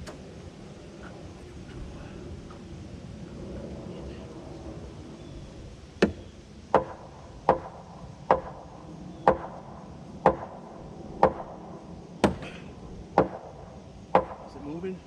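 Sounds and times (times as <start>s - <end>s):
hammer knocking on wood: 6.8s - 8.6s, 9.3s - 9.5s, 10.3s - 10.5s, 11.2s - 11.5s, 12.2s - 12.6s, 13.2s - 13.4s, 14.2s - 14.4s.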